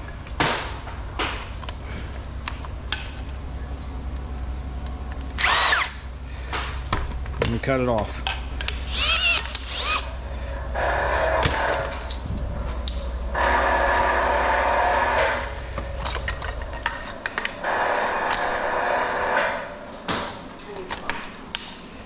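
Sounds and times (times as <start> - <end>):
power tool cutting metal: 5.4 - 6.0, 8.8 - 10.1, 13.4 - 15.6
metal pieces clanking: 15.4 - 18.6.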